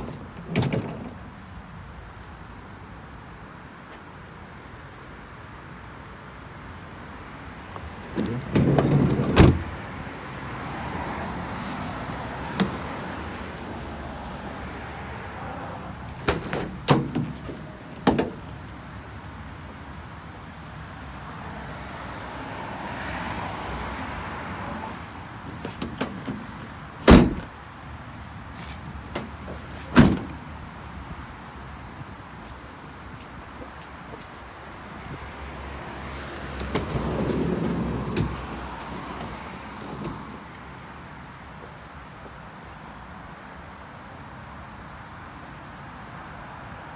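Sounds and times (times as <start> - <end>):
van door clicks and knocks: 0.0 - 1.4, 7.8 - 9.8, 12.6 - 13.0, 16.1 - 18.7, 25.4 - 27.6, 28.9 - 30.5, 36.5 - 40.6
van door slamming: 0.0 - 1.4, 7.8 - 9.8, 12.5 - 13.0, 16.1 - 18.7, 25.4 - 27.6, 29.0 - 30.5, 36.5 - 40.6.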